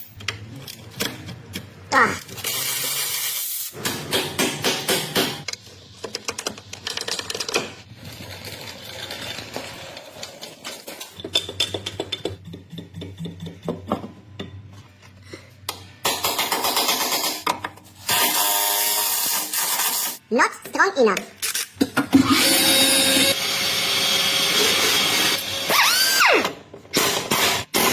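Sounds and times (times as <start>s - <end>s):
mechanic's tools clicking and clattering: 0.0s - 14.6s.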